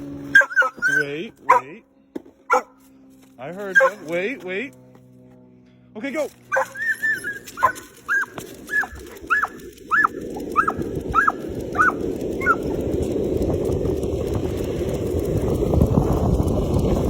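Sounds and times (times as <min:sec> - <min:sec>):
dog yipping: 0:00.3 - 0:01.7, 0:02.5 - 0:02.8, 0:03.7 - 0:04.1, 0:06.5 - 0:12.7.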